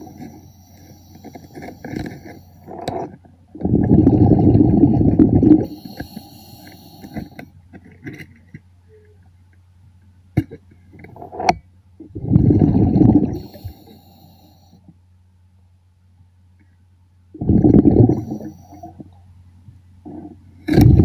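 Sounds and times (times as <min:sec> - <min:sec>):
steady low hum: 0:00.0 - 0:21.0
exhaled bubbles rumbling: 0:02.7 - 0:06.2, 0:12.0 - 0:13.8, 0:17.4 - 0:19.1, 0:20.6 - 0:21.0
faint high hiss: 0:04.7 - 0:07.6, 0:13.0 - 0:20.8.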